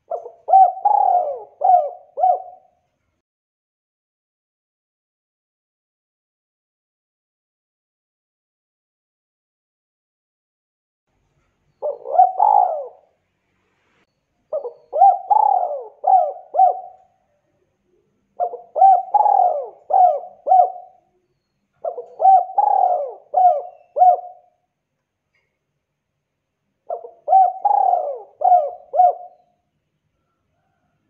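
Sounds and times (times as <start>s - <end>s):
dove cooing: 0.0s - 2.8s, 11.8s - 13.2s, 14.5s - 17.2s, 17.9s - 21.2s, 21.8s - 24.6s, 26.9s - 29.6s.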